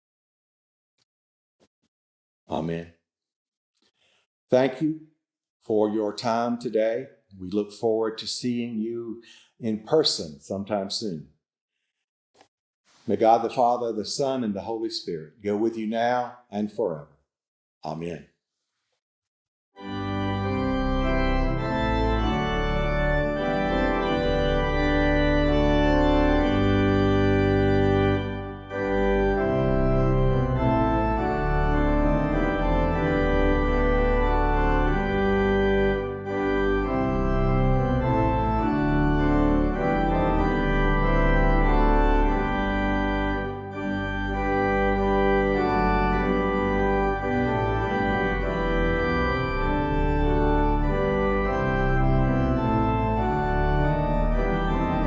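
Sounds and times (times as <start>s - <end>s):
organ playing slow chords: 19.8s - 55.0s.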